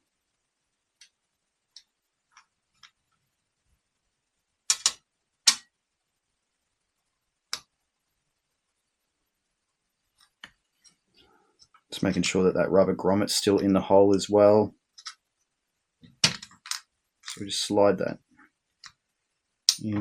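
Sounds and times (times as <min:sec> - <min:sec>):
small metal parts clicking on bench: 0:04.7 - 0:05.6, 0:15.0 - 0:15.2.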